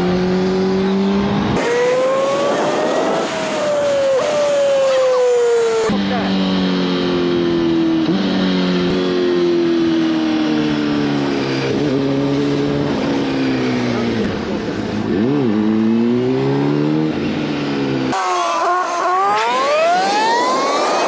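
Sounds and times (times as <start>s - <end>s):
engine revving up: 0.1s - 6.0s, 18.1s - 21.0s.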